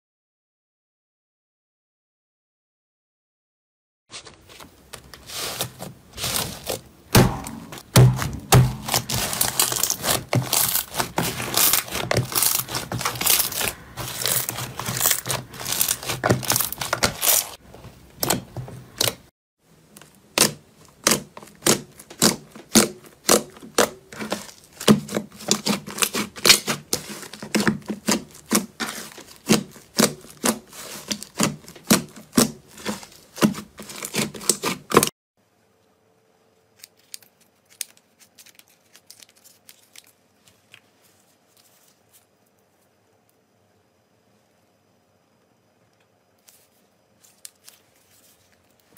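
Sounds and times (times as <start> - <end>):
slime crackling and popping: 8.0 - 17.6, 20.3 - 35.0.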